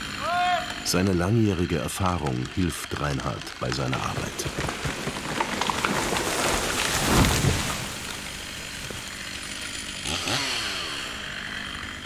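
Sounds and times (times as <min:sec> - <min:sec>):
branches crackling and snapping: 0:00.0 - 0:12.0
tree crashing down: 0:02.9 - 0:11.4.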